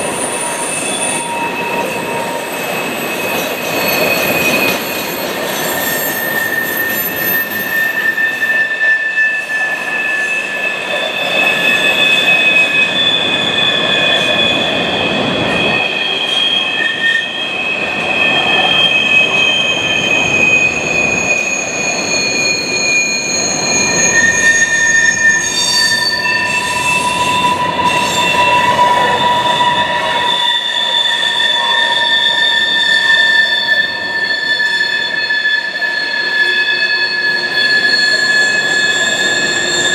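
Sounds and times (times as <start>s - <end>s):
train wheels squealing on rail: 0.0s - 39.9s
train rumble: 9.4s - 34.7s.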